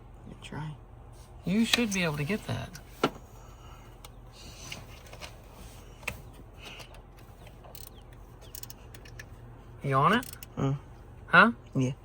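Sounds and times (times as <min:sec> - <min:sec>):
ratchet clicking: 0:07.7 - 0:09.2, 0:10.1 - 0:10.6.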